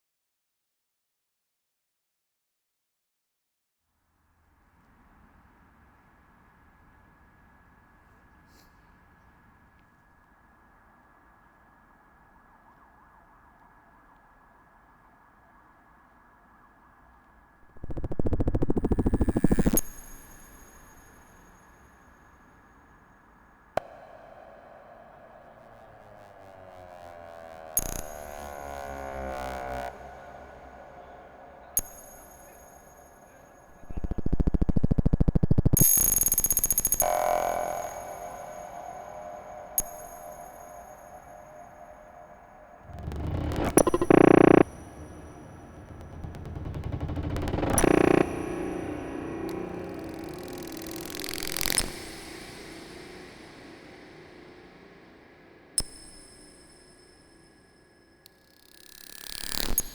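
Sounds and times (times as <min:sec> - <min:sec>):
faint steady hum: 0:04.4 - 0:59.9
rapid pulsing buzz: 0:17.7 - 0:21.0, 0:23.8 - 0:55.9
thin high tones: 0:23.8 - 0:34.0, 0:36.2 - 0:54.4.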